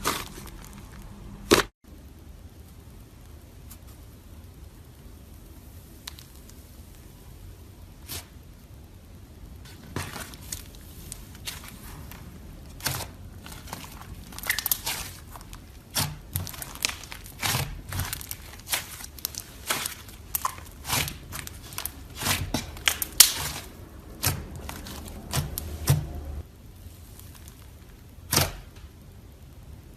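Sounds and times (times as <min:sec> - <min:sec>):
slime squished with sticky crackles: 0:00.0 - 0:01.7, 0:09.7 - 0:28.8.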